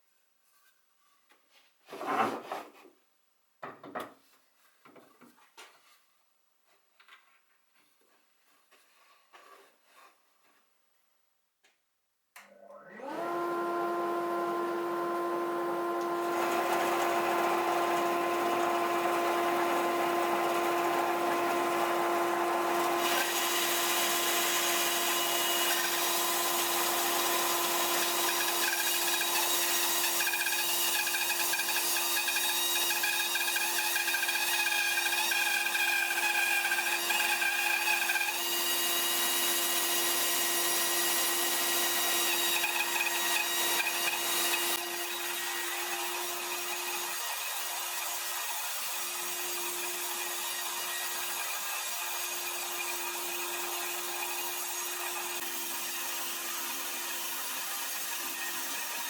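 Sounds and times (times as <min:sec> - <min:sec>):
table saw cutting wood: 0:12.7 - 0:59.0.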